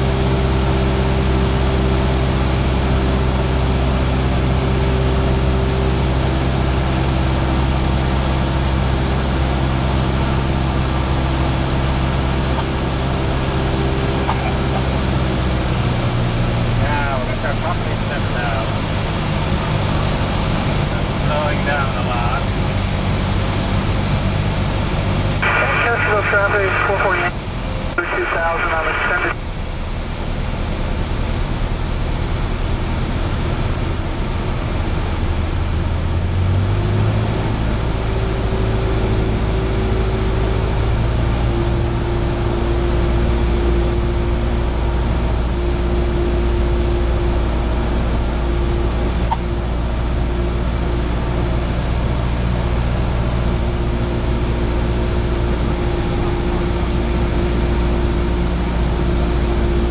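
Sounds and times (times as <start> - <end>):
light aircraft engine droning: 0.0 - 59.9.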